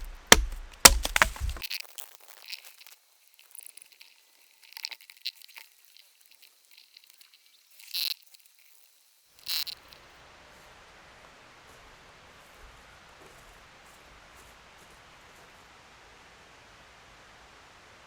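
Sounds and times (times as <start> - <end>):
small crackles and clicks: 0.0 - 10.0.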